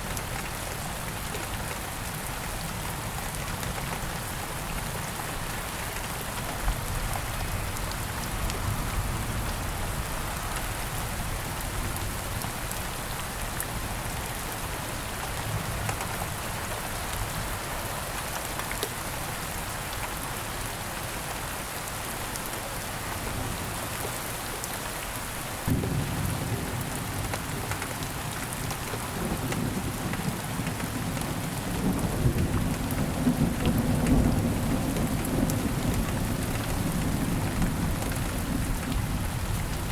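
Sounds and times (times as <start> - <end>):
steady rain falling: 0.0 - 39.9
low thunder rumble: 25.7 - 27.7.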